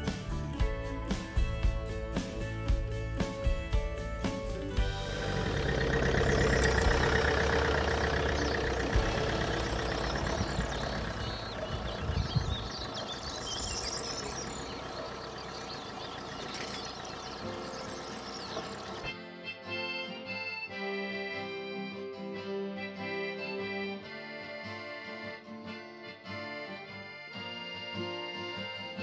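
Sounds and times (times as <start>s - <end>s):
car engine driving off: 4.7s - 19.1s
birds singing: 4.8s - 19.1s.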